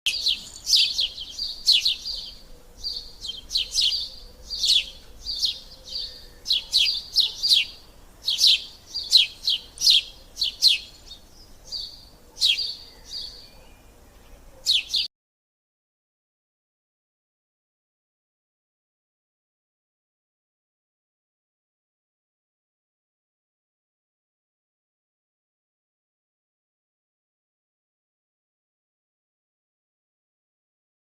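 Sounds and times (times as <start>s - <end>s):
bird chirping: 0.1s - 15.1s.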